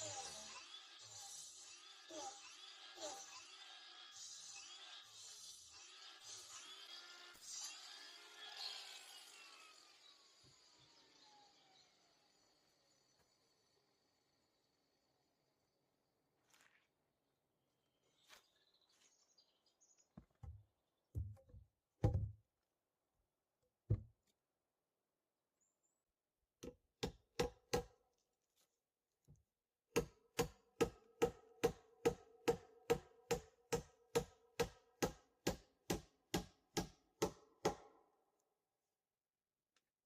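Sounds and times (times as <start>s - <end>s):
tool striking wood: 26.6s - 28.0s, 29.9s - 38.0s.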